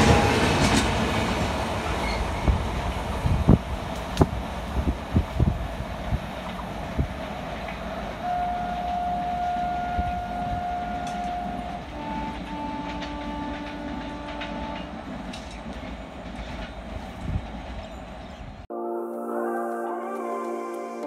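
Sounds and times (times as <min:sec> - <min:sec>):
train wheels rumbling on rails: 0:00.0 - 0:18.7
train horn blasts: 0:08.2 - 0:16.0.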